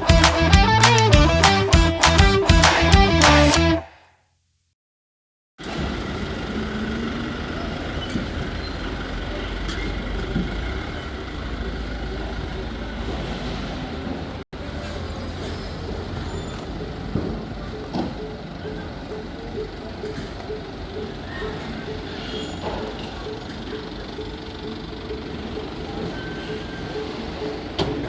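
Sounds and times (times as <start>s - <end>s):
traffic rumble: 5.6s - 28.0s.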